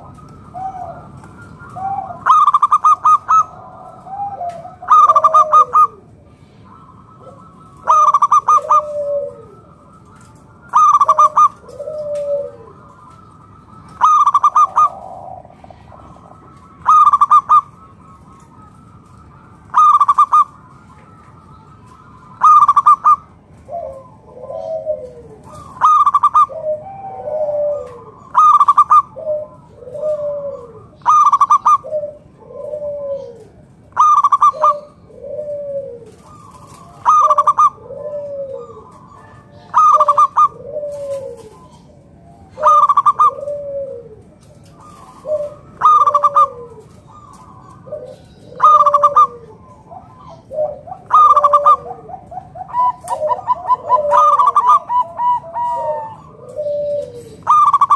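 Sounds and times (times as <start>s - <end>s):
dove rapid staccato coo: 0.0s - 57.9s
dove soft falling coo: 0.0s - 57.9s.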